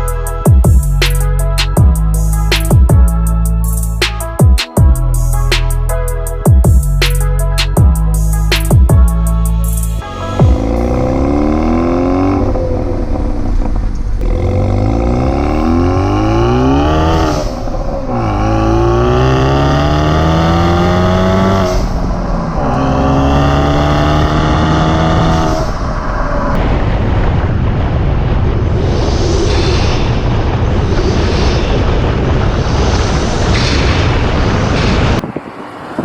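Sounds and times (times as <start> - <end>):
car engine accelerating hard: 10.0 - 26.6.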